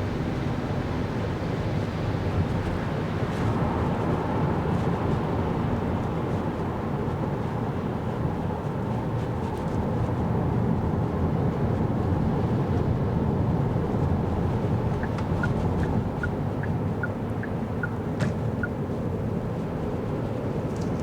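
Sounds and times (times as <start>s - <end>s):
road and tyre rumble: 0.0s - 21.0s
turn signal ticking: 14.7s - 19.0s.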